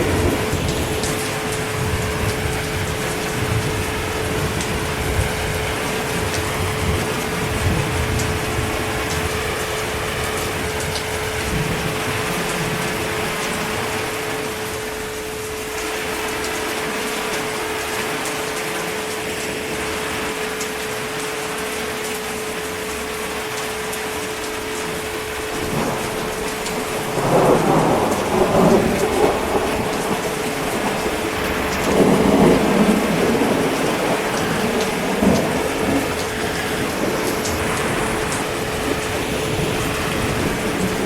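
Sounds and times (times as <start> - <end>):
thunder rumbling: 0.0 - 15.2, 24.9 - 41.0
steady rain: 0.0 - 41.0.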